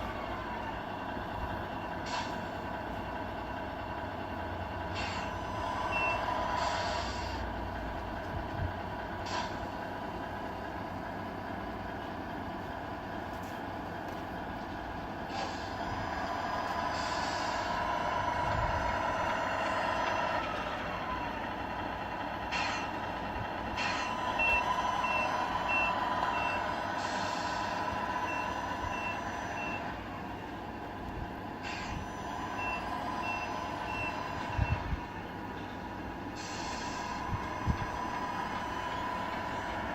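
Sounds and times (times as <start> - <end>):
simulated diesel truck engine: 0.0 - 39.9
reversing beeper: 5.2 - 7.2, 23.8 - 30.0, 31.8 - 34.9
air-brake hisses: 16.9 - 17.9, 26.9 - 27.9, 31.6 - 32.2, 36.3 - 38.9.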